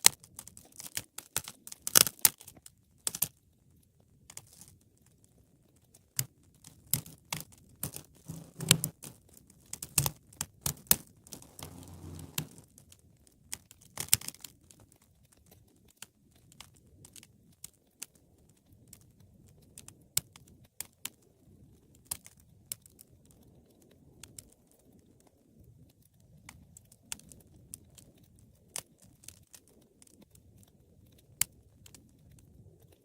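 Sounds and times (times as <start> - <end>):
wood fire crackling and popping: 11.3 - 12.6.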